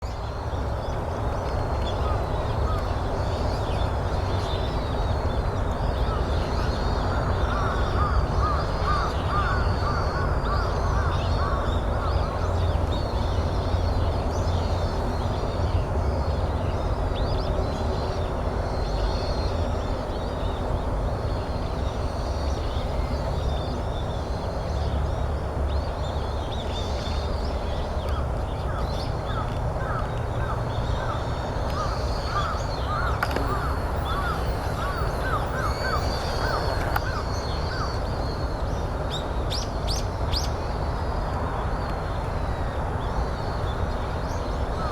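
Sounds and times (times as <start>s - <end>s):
small birds twittering: 0.1s - 44.9s
crows cawing: 31.8s - 37.9s.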